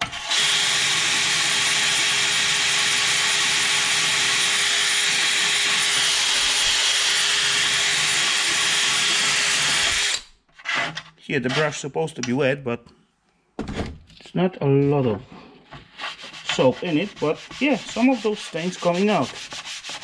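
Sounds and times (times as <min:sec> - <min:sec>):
power drill whirring: 0:00.2 - 0:02.0, 0:03.7 - 0:10.3.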